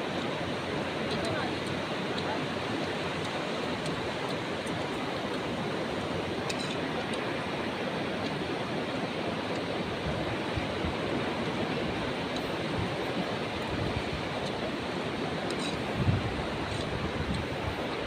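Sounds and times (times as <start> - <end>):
sea surf rushing: 0.0 - 18.0
wind on microphone: 9.7 - 18.0.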